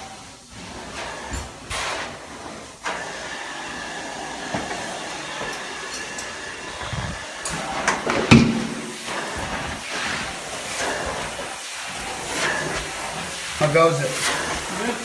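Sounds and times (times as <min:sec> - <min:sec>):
carpet cleaning vacuum hiss: 0:00.0 - 0:15.0.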